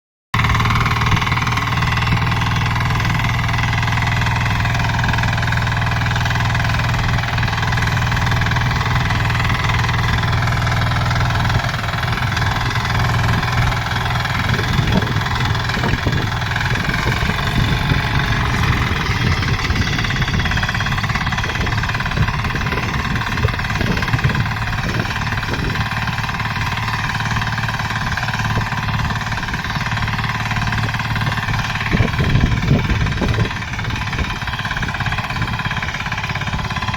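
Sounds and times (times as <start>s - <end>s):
diesel tiller engine running: 0.4s - 36.9s
uneven low rumble: 8.0s - 36.9s.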